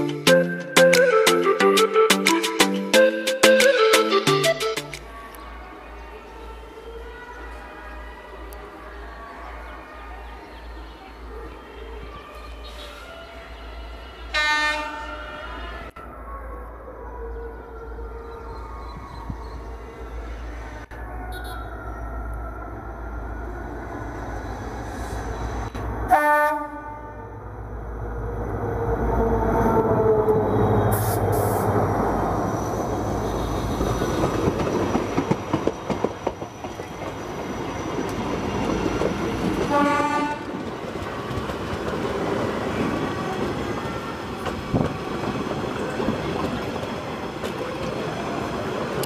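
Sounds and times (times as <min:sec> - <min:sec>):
locomotive horn blast: 0:14.3 - 0:15.9, 0:21.3 - 0:21.7, 0:26.1 - 0:27.4, 0:39.6 - 0:40.6
train wheels clicking over rail joints: 0:33.9 - 0:39.7.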